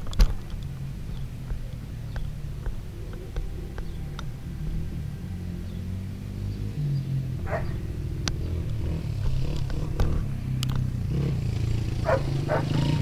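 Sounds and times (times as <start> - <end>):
dirt bike engine idling: 0.0 - 13.0
dog barking: 7.4 - 7.8, 12.0 - 12.9.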